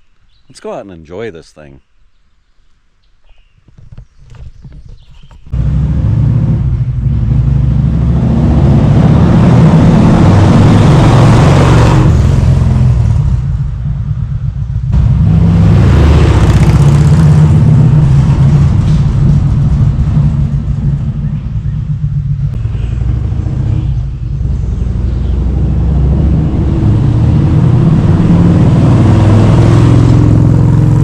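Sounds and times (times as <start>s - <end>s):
motorcycle engine running: 4.0s - 31.0s
wind rushing: 14.9s - 24.9s.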